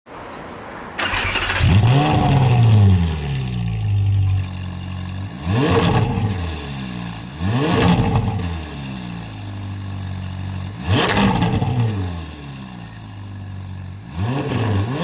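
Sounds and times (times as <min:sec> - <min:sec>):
sports car engine revving: 0:01.4 - 0:15.0.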